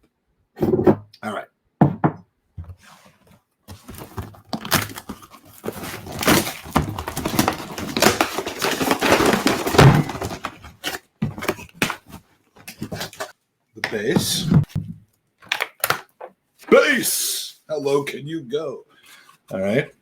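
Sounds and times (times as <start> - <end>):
cardboard packaging rustling and tearing: 3.7 - 13.3.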